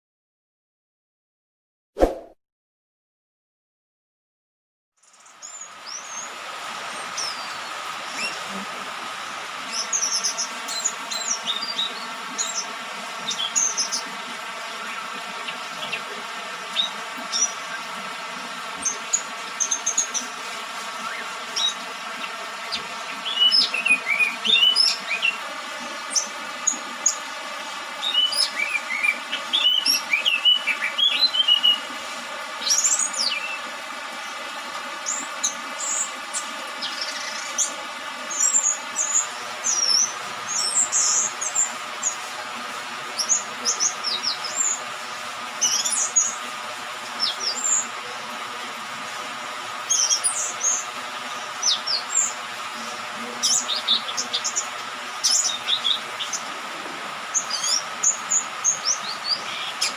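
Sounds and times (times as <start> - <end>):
bird chirping and twittering: 6.9 - 8.5, 9.6 - 14.1, 14.8 - 17.9, 21.0 - 27.2, 28.0 - 31.9, 45.6 - 46.4, 49.9 - 52.4, 53.4 - 56.4, 57.3 - 59.9.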